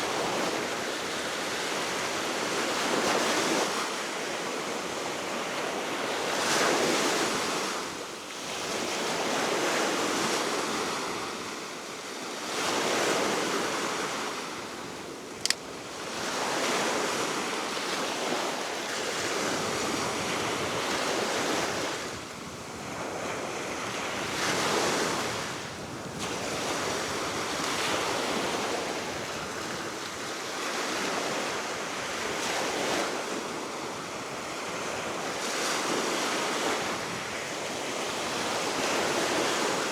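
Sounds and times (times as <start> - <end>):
sharp click: 15.4 - 15.6
wind noise on microphone: 19.1 - 30.3.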